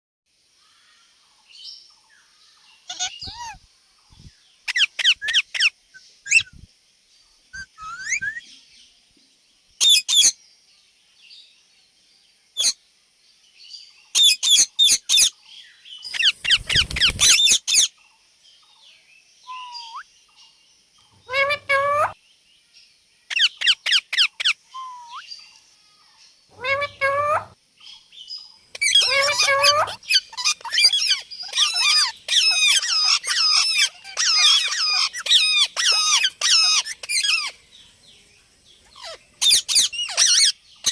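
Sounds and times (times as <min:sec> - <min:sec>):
parakeet sharp high calls: 0:02.9 - 0:03.6, 0:04.7 - 0:05.7, 0:07.6 - 0:08.4, 0:16.1 - 0:17.9, 0:19.5 - 0:20.0, 0:21.2 - 0:22.2, 0:23.3 - 0:25.3, 0:26.5 - 0:27.6, 0:28.7 - 0:37.6, 0:39.0 - 0:40.9.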